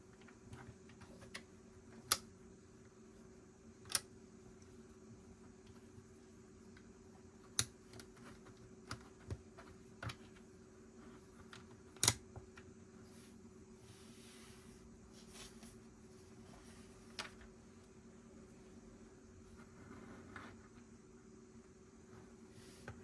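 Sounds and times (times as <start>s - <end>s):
faint steady hum: 0.0s - 23.0s
soft rustle: 13.0s - 17.4s.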